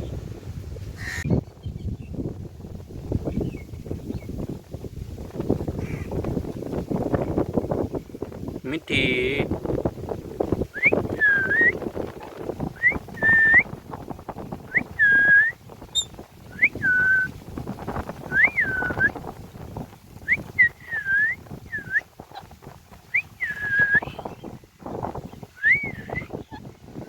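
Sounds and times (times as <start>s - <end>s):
parrot whistled calls: 18.3s - 19.1s, 25.6s - 26.3s.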